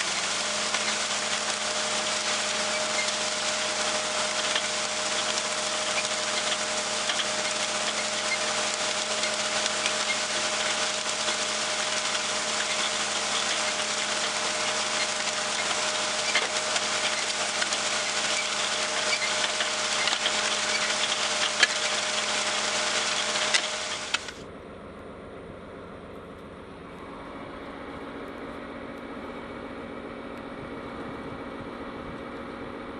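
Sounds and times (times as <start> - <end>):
tractor engine running: 0.0 - 24.5.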